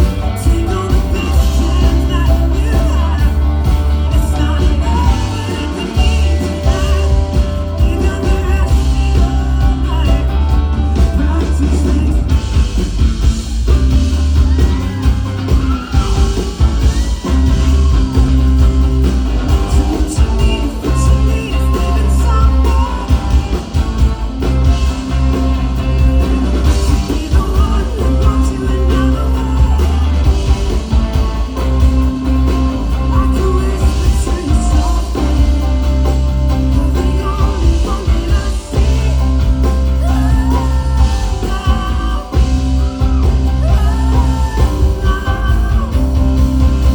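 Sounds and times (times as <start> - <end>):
person singing: 0.0 - 13.0, 13.7 - 46.9
heavy bass line: 0.0 - 46.9
rock band playing live: 0.0 - 46.9.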